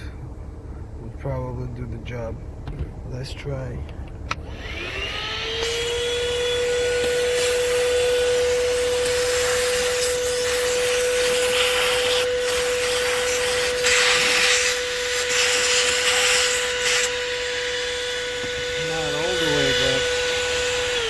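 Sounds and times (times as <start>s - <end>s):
vacuum cleaner motor whine: 4.3s - 21.0s
vacuum suction hiss: 4.4s - 21.0s.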